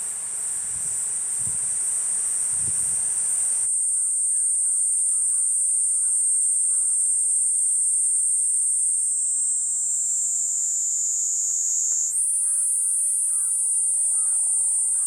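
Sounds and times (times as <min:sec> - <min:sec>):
cicada buzzing: 0:00.0 - 0:15.0
faint bird calls: 0:12.3 - 0:15.0.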